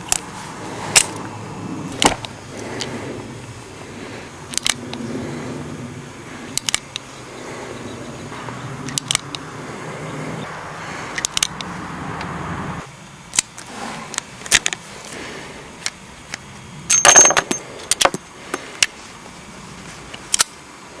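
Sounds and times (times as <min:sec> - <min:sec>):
revolver cylinder clicks: 0:04.5 - 0:05.0, 0:06.5 - 0:07.1, 0:08.8 - 0:09.4, 0:11.2 - 0:12.3, 0:20.2 - 0:20.6
brass cartridges clinking: 0:16.9 - 0:18.8.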